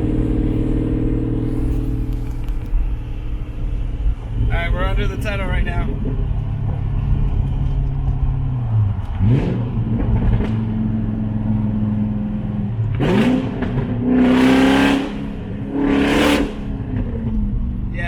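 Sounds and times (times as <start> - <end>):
car engine revving hard: 9.1 - 11.8, 12.9 - 17.2.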